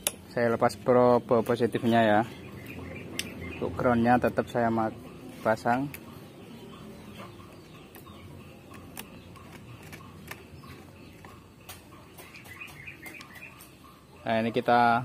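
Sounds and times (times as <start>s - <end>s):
light sharp clicks: 3.1s - 3.4s
faint bird calls: 5.0s - 15.0s.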